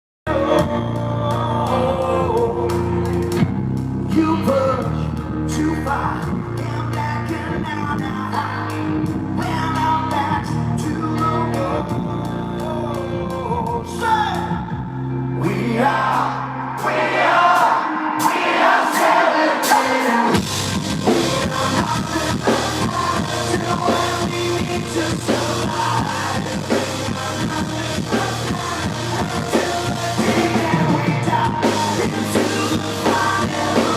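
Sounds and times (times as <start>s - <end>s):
blues-rock band playing: 0.3s - 33.9s
lead vocal singing: 0.3s - 33.9s.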